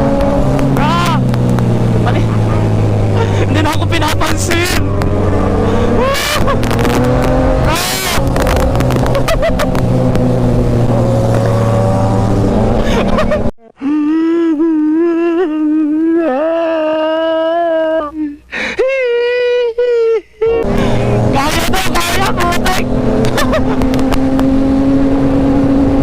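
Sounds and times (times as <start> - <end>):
motorcycle engines revving: 0.0 - 13.6, 20.5 - 26.0
sharp cracks: 0.2 - 1.8.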